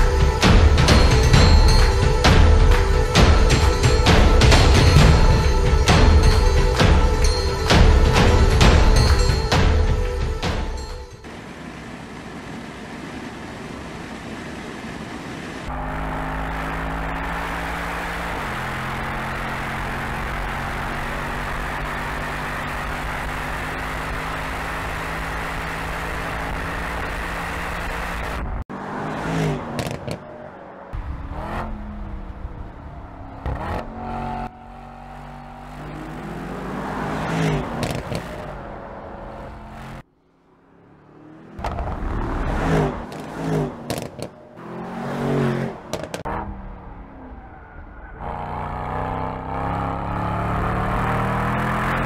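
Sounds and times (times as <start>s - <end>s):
car engine revving: 11.3s - 52.0s.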